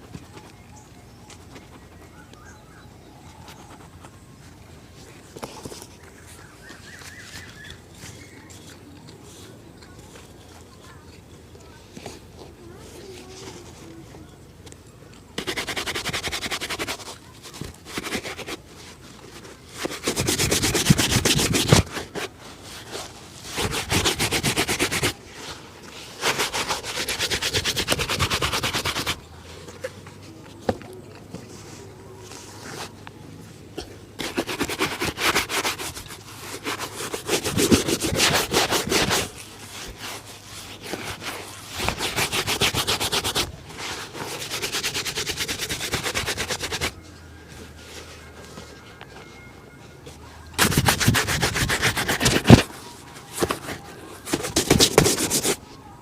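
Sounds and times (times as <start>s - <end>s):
cloth rubbing leather shoe: 15.4s - 33.0s, 33.8s - 47.0s, 50.1s - 55.6s.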